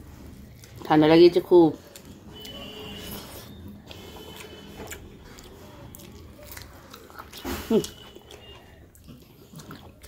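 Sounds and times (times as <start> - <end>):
close-up chewing with mouth clicks: 0.0 - 10.0.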